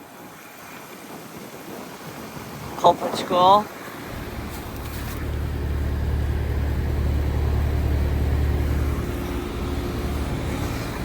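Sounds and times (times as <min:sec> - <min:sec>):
heat pump mechanical hum: 0:04.1 - 0:11.0.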